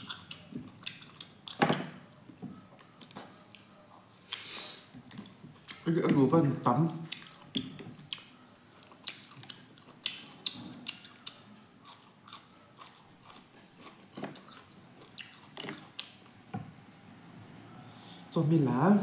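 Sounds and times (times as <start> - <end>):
person chewing meat: 0.0 - 5.9, 6.8 - 16.4
wet mouth clicks and smacks: 9.0 - 11.4.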